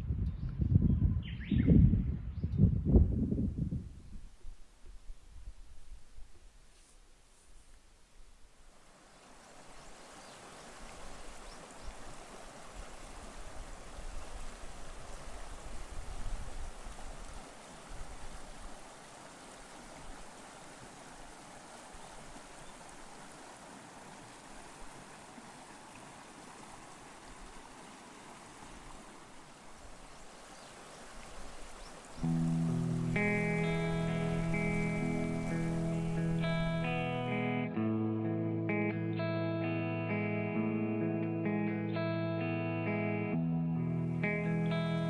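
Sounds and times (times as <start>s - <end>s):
mountain stream flowing: 4.4s - 37.5s, 44.0s - 45.0s.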